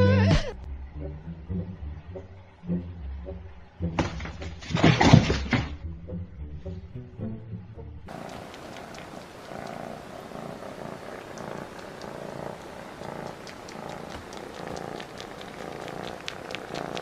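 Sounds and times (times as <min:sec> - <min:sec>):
cat purring: 0:08.1 - 0:17.0
light ticks: 0:08.1 - 0:17.0.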